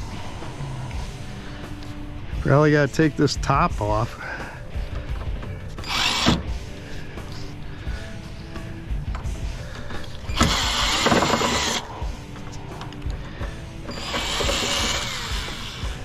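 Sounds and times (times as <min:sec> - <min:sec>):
power drill driving screws: 0:05.8 - 0:06.6, 0:10.3 - 0:11.9, 0:13.9 - 0:16.0.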